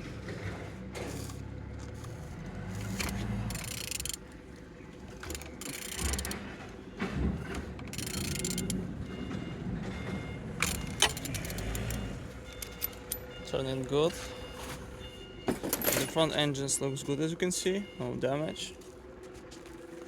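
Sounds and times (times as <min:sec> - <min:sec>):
engine scraping and rattling: 0:00.0 - 0:17.2
sharp clicks: 0:08.0 - 0:08.8, 0:10.6 - 0:13.2.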